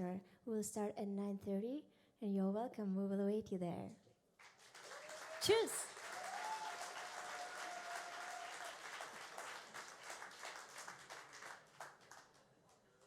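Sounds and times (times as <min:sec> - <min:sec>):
audience applause: 0:04.6 - 0:12.4.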